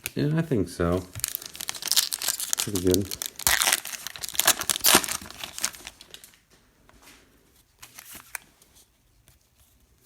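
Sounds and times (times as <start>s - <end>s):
cards sliding and rustling: 7.8s - 9.4s.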